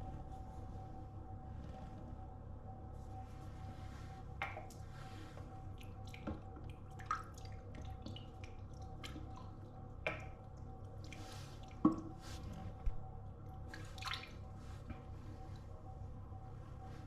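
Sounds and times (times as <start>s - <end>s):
low steady hum: 0.0s - 17.0s
water dripping: 4.4s - 4.8s, 5.6s - 12.2s, 13.5s - 14.5s.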